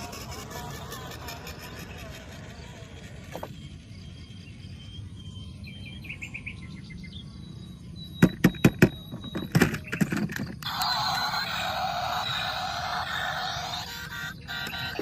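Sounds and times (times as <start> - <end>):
sharp clicks and knocks: 8.2 - 10.7.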